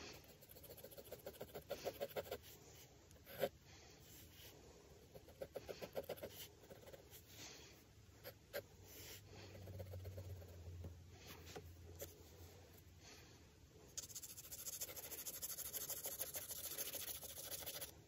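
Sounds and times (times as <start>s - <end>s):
pencil scratching on paper: 0.0s - 2.6s, 3.2s - 3.5s, 5.1s - 7.3s, 8.2s - 10.6s, 14.0s - 18.0s.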